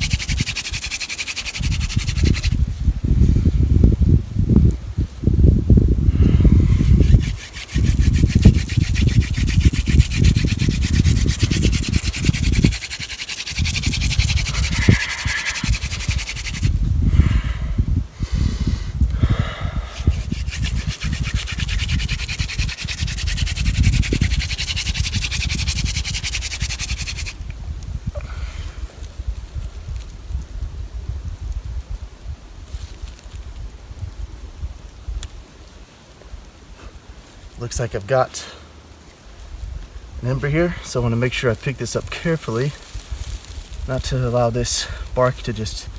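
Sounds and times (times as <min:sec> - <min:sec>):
hand drill friction rubbing: 0:00.0 - 0:02.6, 0:06.4 - 0:16.8, 0:19.9 - 0:27.4.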